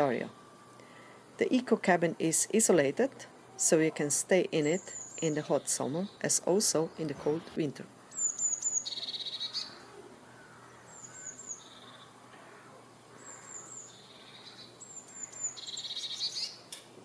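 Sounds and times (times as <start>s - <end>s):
songbirds singing: 3.6s - 16.8s.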